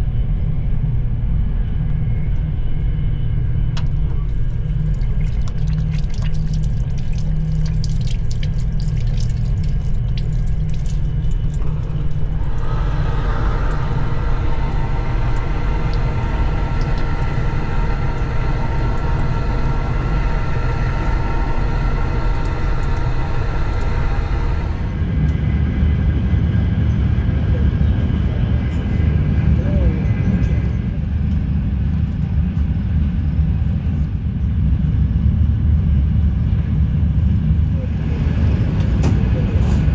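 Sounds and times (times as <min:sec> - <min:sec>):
train rumble inside coach: 0:00.0 - 0:39.9
rushing noise with thin whine: 0:11.4 - 0:25.1.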